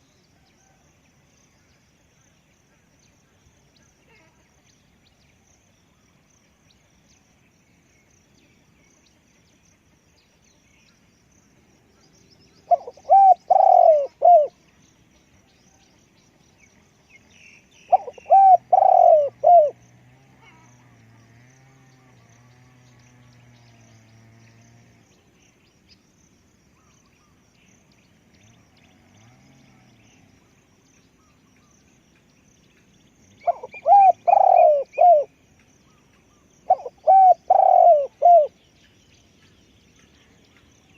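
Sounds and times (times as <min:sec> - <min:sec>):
small birds chirping: 0:01.4 - 0:40.9
dove cooing: 0:12.6 - 0:14.6, 0:17.9 - 0:19.8, 0:33.4 - 0:35.3, 0:36.3 - 0:38.6.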